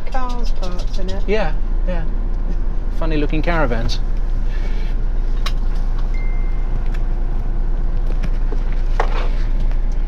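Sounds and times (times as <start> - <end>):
vehicle engine and road rumble: 0.0 - 10.0
thin high tone: 6.1 - 6.8.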